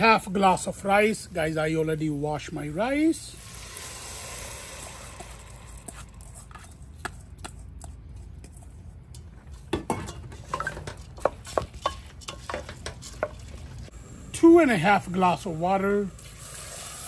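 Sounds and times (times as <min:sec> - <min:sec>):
metal spoon scraping cooking pot: 0:04.8 - 0:09.3.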